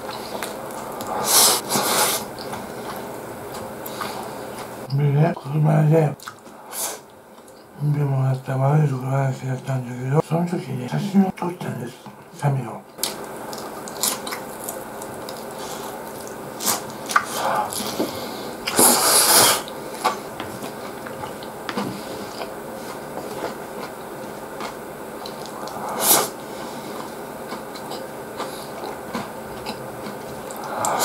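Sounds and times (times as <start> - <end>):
person chewing food: 0.0 - 4.9, 6.2 - 7.7, 13.0 - 31.0
background hiss: 0.0 - 29.4.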